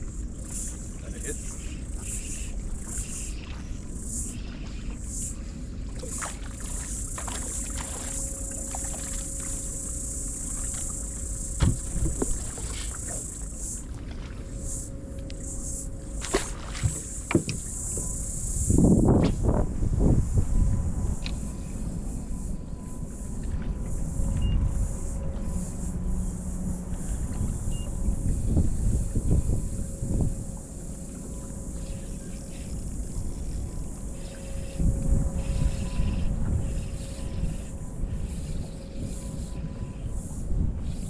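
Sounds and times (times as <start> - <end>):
faint steady hum: 0.0 - 41.0
faint steady whine: 0.0 - 41.0
water around boat hull: 0.0 - 41.0
dull thump: 11.6 - 12.4, 16.2 - 18.1.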